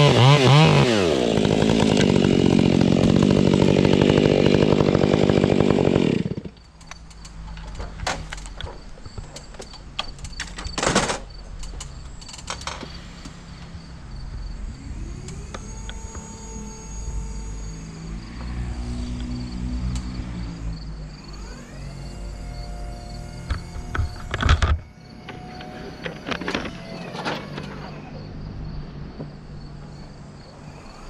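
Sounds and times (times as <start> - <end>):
chainsaw cutting wood: 0.0 - 6.6, 14.9 - 20.4, 21.3 - 28.0.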